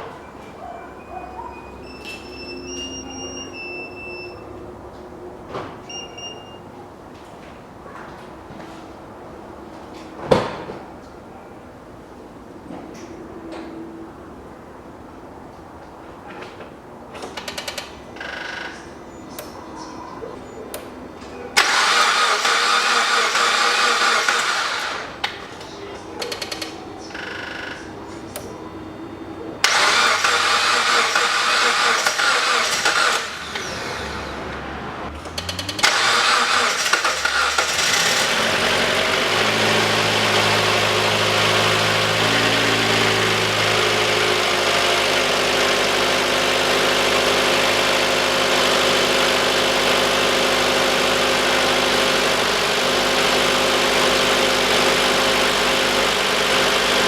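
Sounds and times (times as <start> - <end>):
starter cranking engine: 21.6 - 25.4, 29.6 - 57.0
car engine idling: 21.6 - 28.5, 29.6 - 57.0.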